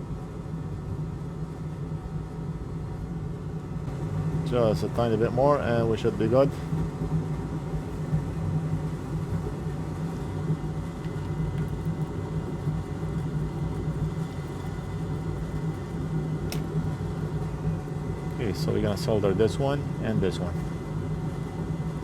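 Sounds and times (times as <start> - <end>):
low whirring hum: 0.0 - 22.0
light click: 16.5 - 16.7.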